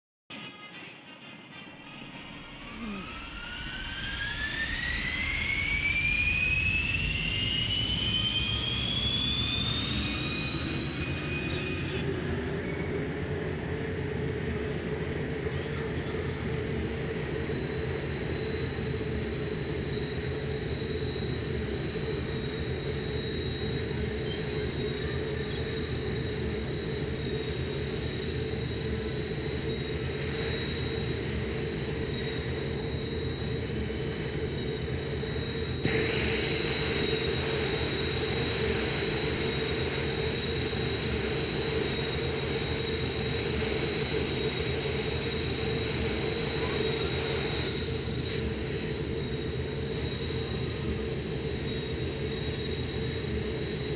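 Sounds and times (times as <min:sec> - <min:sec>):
jet engine whine rising: 0:01.6 - 0:53.9.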